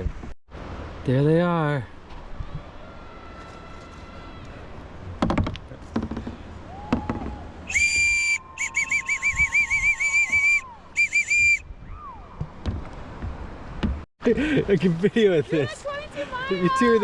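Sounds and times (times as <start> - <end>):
shrill whistle blasts: 7.7 - 12.3.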